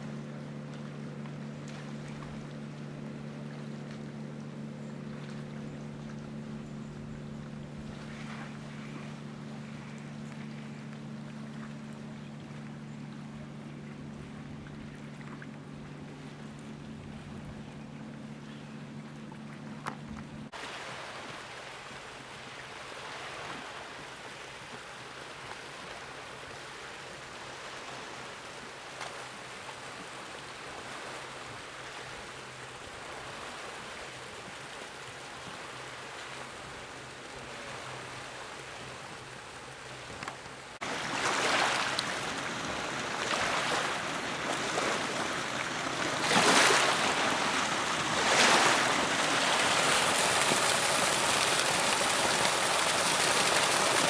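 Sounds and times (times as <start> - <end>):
faint low engine hum: 0.0 - 54.0
rushing water: 19.2 - 54.0.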